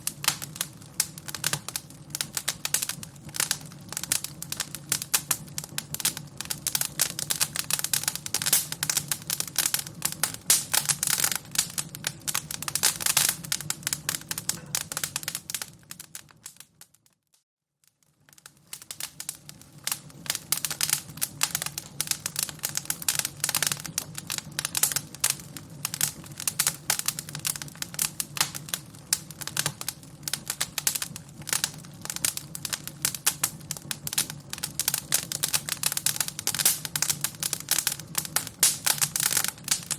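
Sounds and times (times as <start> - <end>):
wood fire crackling: 0.0 - 17.1, 17.8 - 39.9.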